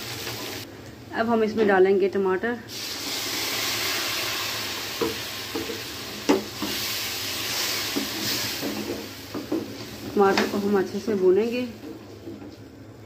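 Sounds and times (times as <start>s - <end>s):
puree sizzling in hot oil: 0.0s - 0.7s, 2.7s - 12.1s.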